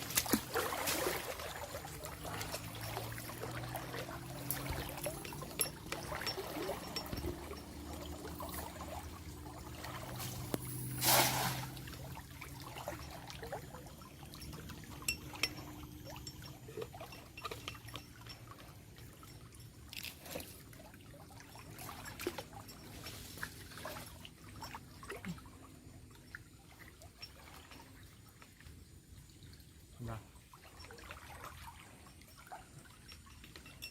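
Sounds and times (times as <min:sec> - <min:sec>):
rush of water: 0:00.0 - 0:13.6
water dripping: 0:00.0 - 0:20.1
water trickling and splashing: 0:00.0 - 0:33.9.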